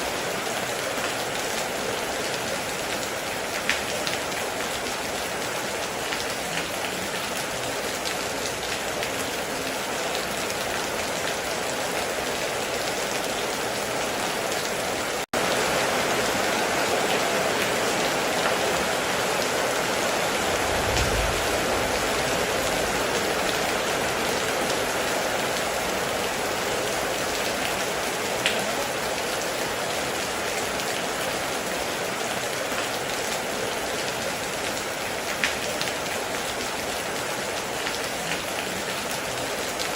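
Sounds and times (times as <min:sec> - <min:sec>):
heavy rain on a metal roof: 0:00.0 - 0:39.9
low rumble: 0:20.5 - 0:23.4.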